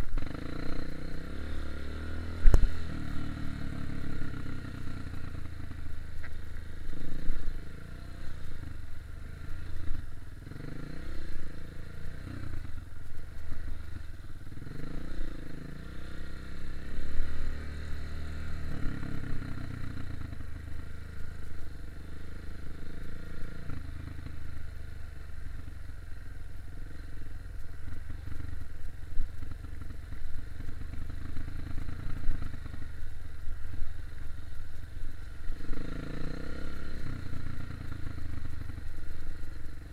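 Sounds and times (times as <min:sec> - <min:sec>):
dirt bike engine revving: 0:00.0 - 0:05.5, 0:35.5 - 0:38.6.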